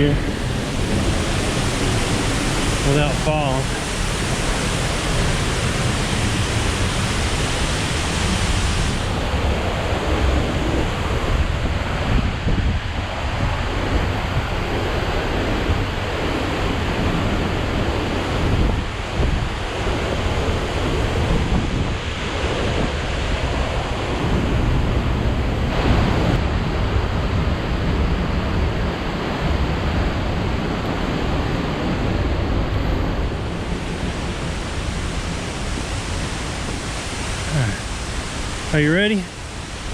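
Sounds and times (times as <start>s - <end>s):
waterfall roaring: 0.0s - 11.5s, 30.0s - 39.9s
wind gusting on microphone: 0.0s - 39.9s.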